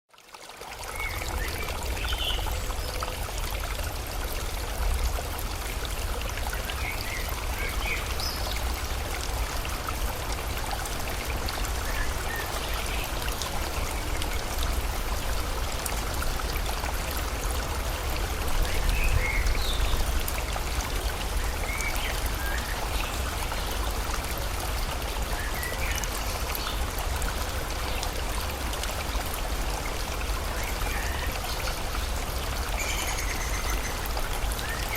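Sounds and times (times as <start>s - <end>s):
rushing water: 0.1s - 34.9s.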